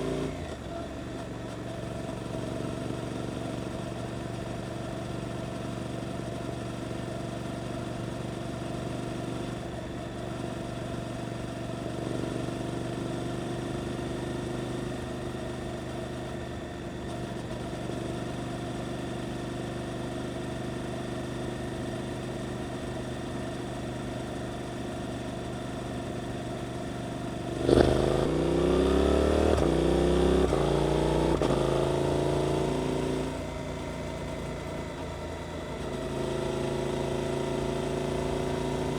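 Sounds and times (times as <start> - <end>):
motorcycle accelerating through gears: 0.0 - 38.9
motorcycle engine revving: 27.4 - 38.9.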